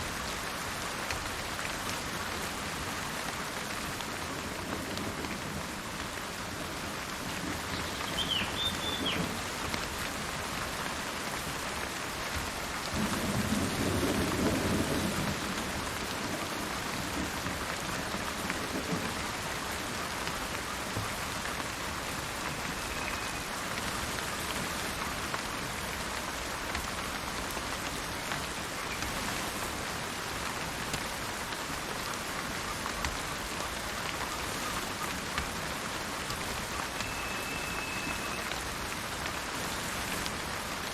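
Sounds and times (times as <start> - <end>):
steady rain falling: 0.0 - 40.9
bird chirping: 7.8 - 9.3, 37.0 - 38.4
low roll of thunder: 13.0 - 17.6.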